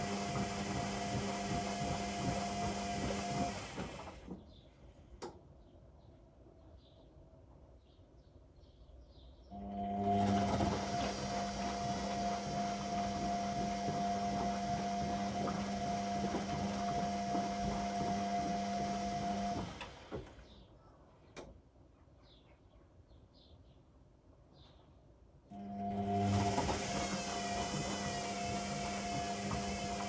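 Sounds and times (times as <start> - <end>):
washing machine drum turning: 0.0 - 4.3, 10.1 - 20.2, 26.0 - 30.0.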